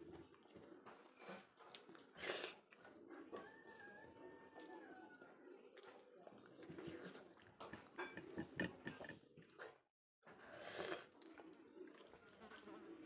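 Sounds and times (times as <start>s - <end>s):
person chewing: 0.0s - 3.9s.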